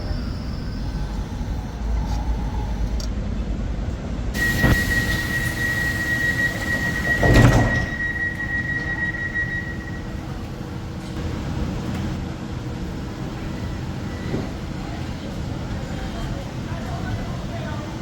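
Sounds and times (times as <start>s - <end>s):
doors sliding shut thud: 4.4s - 8.4s
door warning beep: 4.4s - 10.5s.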